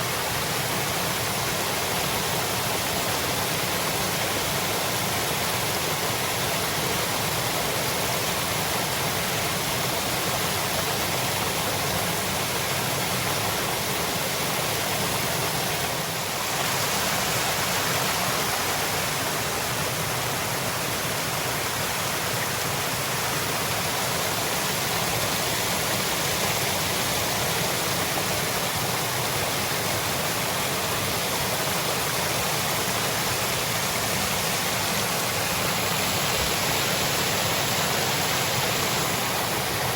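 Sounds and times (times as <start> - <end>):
waterfall pouring and splashing: 0.0 - 39.9.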